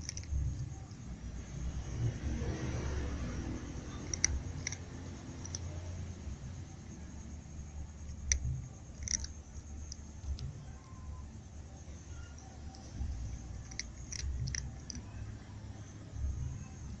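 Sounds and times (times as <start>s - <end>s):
cat teeth clicking on food: 0.0s - 1.0s, 3.3s - 6.2s, 8.0s - 11.0s, 12.8s - 15.1s
low steady rumble: 0.0s - 17.0s.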